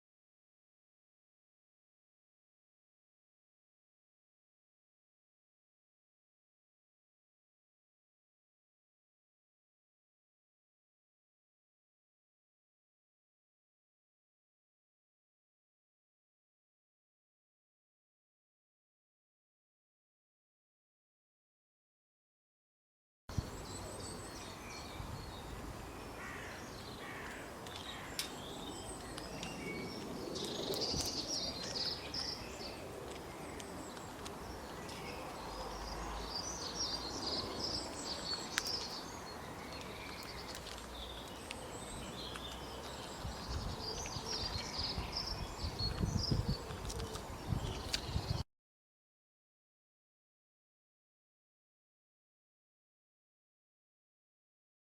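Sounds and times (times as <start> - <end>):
birds chirping: 23.3 - 48.4.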